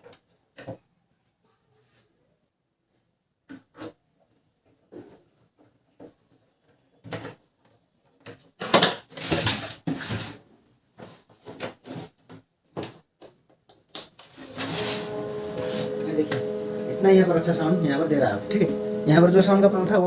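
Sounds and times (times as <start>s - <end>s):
rubbing and sliding plastic: 9.1s - 12.3s, 14.2s - 17.4s.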